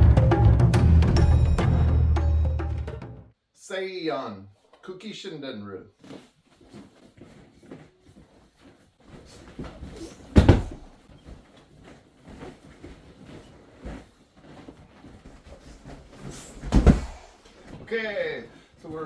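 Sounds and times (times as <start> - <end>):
clothing rustle: 5.9 - 19.0
shuffling footsteps: 6.0 - 19.0
body thudding on floor: 9.0 - 17.9.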